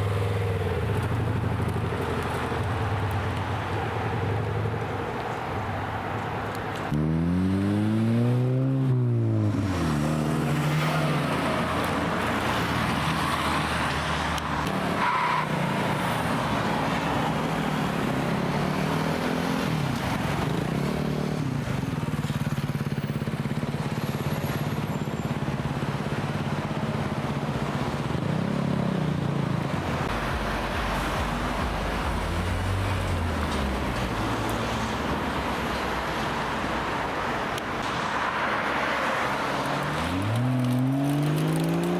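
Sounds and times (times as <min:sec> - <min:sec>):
engine revving: 0:06.9 - 0:14.9, 0:39.8 - 0:41.9
car engines driving past: 0:29.8 - 0:41.9.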